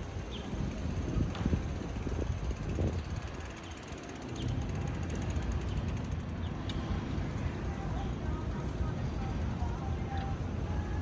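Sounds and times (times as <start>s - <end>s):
wind buffeting microphone: 0.0s - 6.0s
road traffic: 0.0s - 11.0s.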